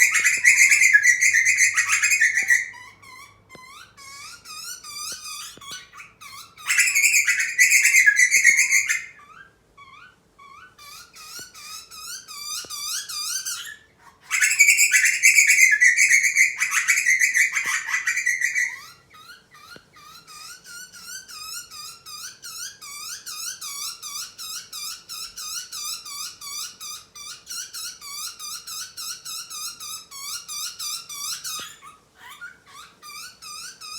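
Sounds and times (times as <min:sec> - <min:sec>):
harsh buzzy bird calls: 0:00.0 - 0:09.5, 0:10.6 - 0:22.6
squeaky bird chirps: 0:00.0 - 0:33.9.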